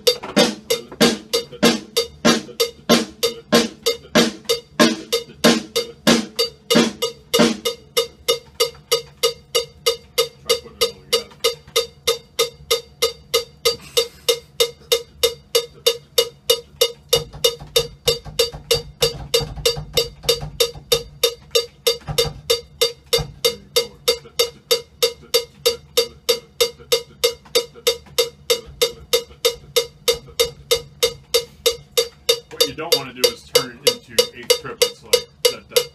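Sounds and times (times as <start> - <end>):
low drum thumps: 0.0 - 8.4, 17.1 - 23.8
metronome clicking: 0.0 - 35.9.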